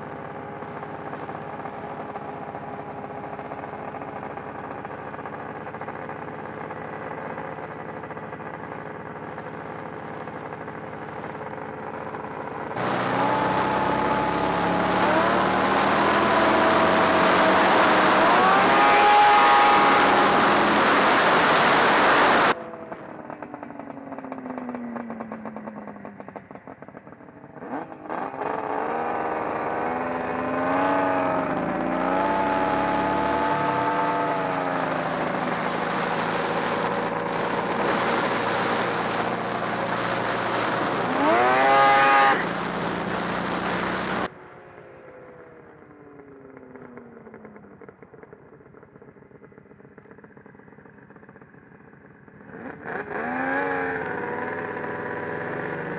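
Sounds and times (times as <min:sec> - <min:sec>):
faint engine with falling pitch: 0:00.0 - 0:55.9
snowmobile engine revving: 0:12.8 - 0:23.4, 0:27.6 - 0:44.3, 0:52.5 - 0:55.9.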